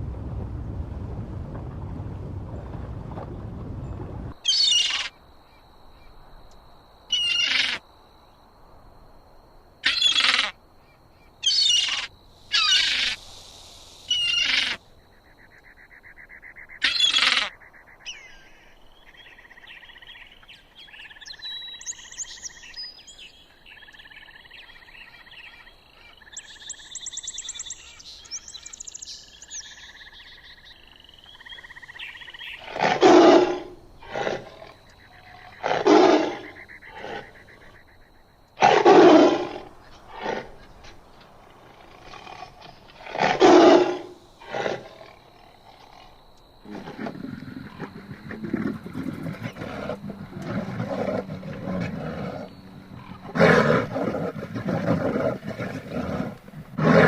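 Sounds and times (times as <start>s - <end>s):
birds chirping and trilling: 3.8s - 5.1s, 7.1s - 7.8s, 9.8s - 13.3s, 14.0s - 33.8s, 47.3s - 56.6s
harsh bird calls: 4.4s - 5.1s, 11.4s - 13.3s, 14.0s - 20.4s
deep animal call: 9.8s - 10.6s, 11.4s - 13.2s, 14.1s - 14.8s, 41.6s - 57.0s.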